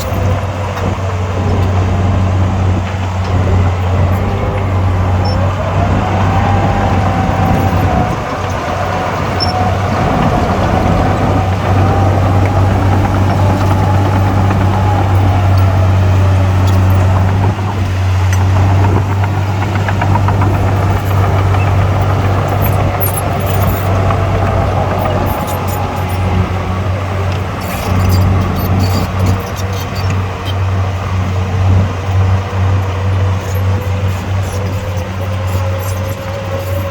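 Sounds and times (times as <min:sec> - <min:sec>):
diesel engine humming: 0:00.0 - 0:36.9.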